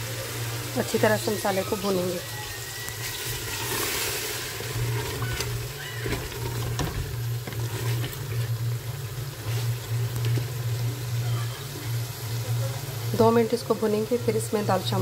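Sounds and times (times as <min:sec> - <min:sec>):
chicken sizzling in a pot: 0:00.0 - 0:15.0
wooden spoon scraping a pot: 0:03.0 - 0:08.6.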